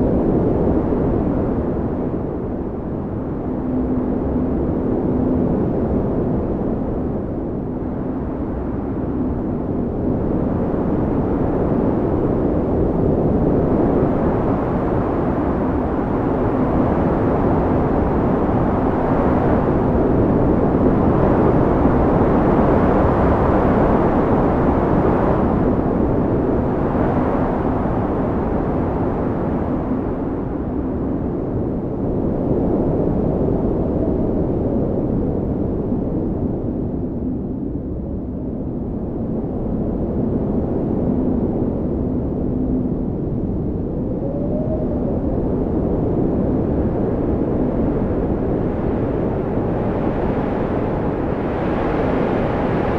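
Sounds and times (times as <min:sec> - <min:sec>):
deep wind noise: 0:00.0 - 0:52.9
faint whistling tone: 0:43.8 - 0:45.7.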